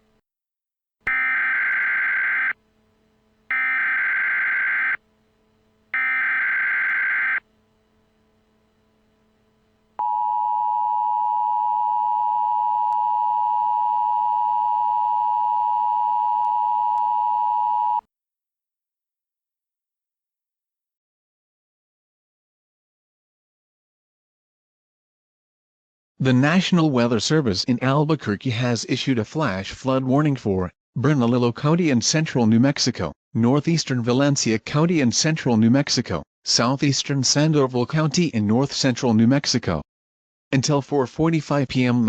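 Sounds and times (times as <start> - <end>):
steady warning tone: 1.1 - 18.0.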